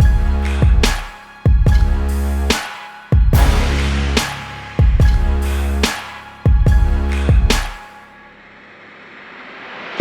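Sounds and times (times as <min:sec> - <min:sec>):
music with booming kick drums: 0:00.0 - 0:02.5, 0:03.2 - 0:07.8.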